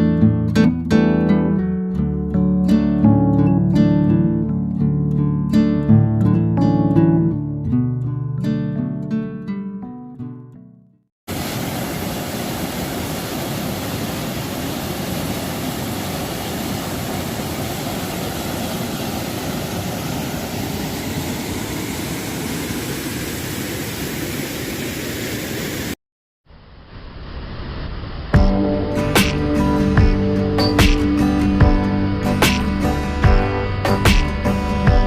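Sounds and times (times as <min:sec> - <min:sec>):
waterfall roaring: 0:11.3 - 0:26.0.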